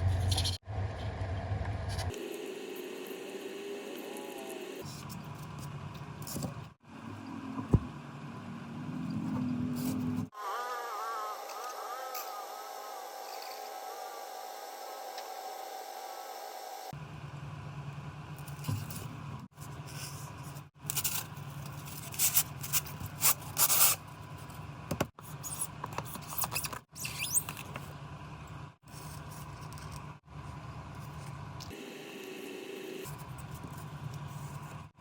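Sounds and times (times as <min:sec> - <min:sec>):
low hum: 0:00.0 - 0:02.2
tool scraping styrofoam: 0:09.7 - 0:14.3, 0:18.5 - 0:24.4.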